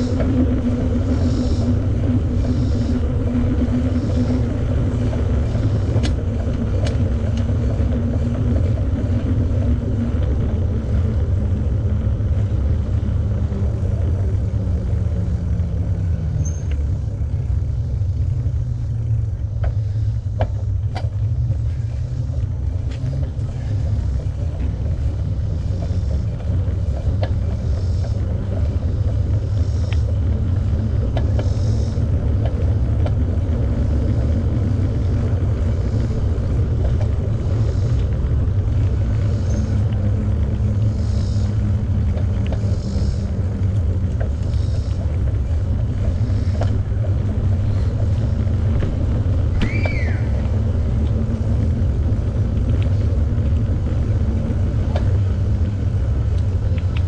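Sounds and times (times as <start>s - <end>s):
low hum: 0.0s - 57.0s
faint clicks: 5.0s - 9.6s, 16.0s - 48.9s, 49.5s - 57.0s.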